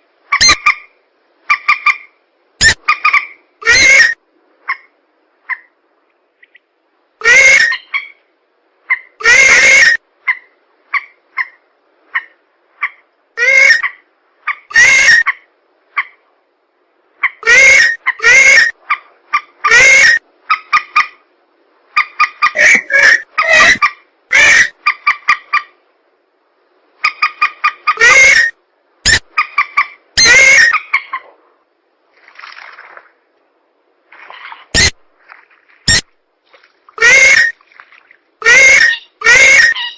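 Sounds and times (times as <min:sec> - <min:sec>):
harsh swamp bird calls: 0:34.2 - 0:35.0, 0:38.4 - 0:39.9.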